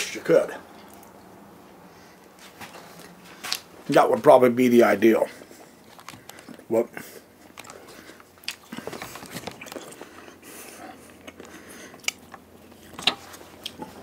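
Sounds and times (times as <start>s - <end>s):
person chewing food: 5.4s - 6.6s, 7.2s - 14.0s.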